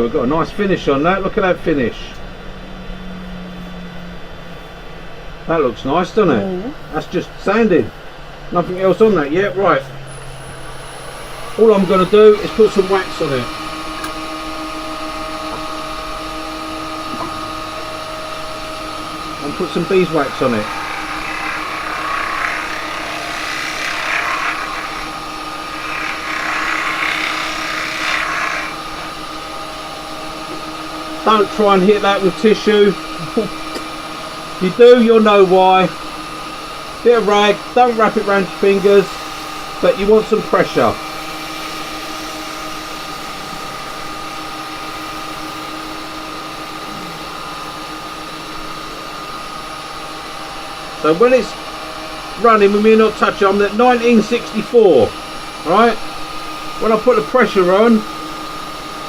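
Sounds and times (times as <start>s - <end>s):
wood lathe motor whine: 8.3s - 59.0s
wax rubbing on spinning wood: 17.6s - 29.4s.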